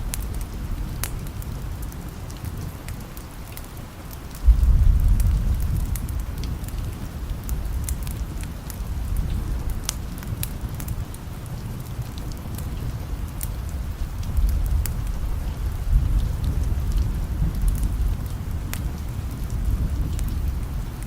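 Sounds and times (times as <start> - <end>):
steady rain: 0.0 - 21.0
wood fire crackling: 0.0 - 21.0
thunder rolling: 4.4 - 9.7.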